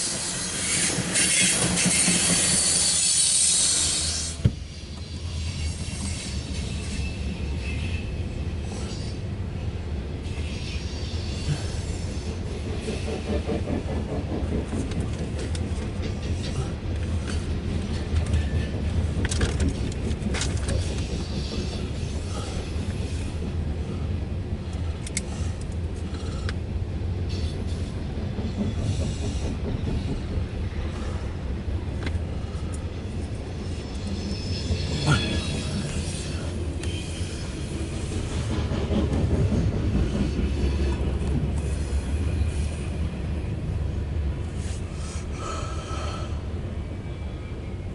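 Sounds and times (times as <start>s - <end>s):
clicks and clanks of train cars: 0.0s - 47.9s
train wheels rumbling on rail: 0.0s - 47.9s.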